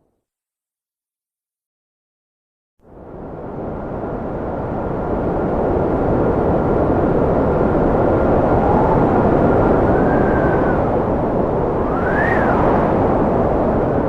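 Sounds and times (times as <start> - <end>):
howling wind gusts: 2.8 - 14.0
strong wind blowing: 2.9 - 14.0
thin wind whistle: 7.9 - 14.0.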